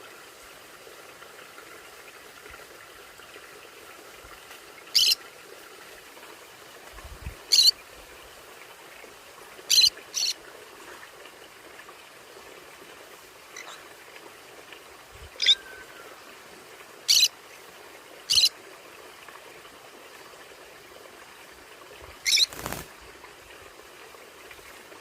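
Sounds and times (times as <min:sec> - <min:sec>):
parrot chirping: 0:04.9 - 0:05.2, 0:07.5 - 0:07.7, 0:09.7 - 0:10.4, 0:15.4 - 0:15.6, 0:17.1 - 0:17.3, 0:18.3 - 0:18.5, 0:22.2 - 0:22.8.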